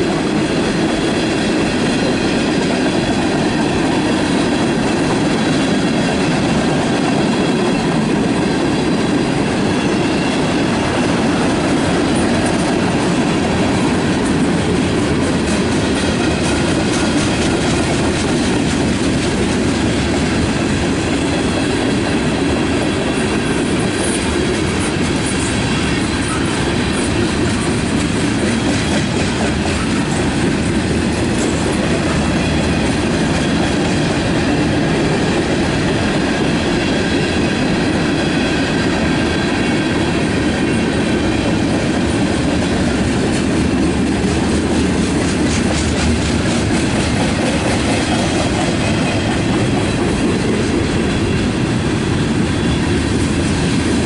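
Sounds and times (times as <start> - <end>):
steel wheels rumbling on rails: 0.0 - 54.0
wheels clacking over rail joints: 40.6 - 51.3.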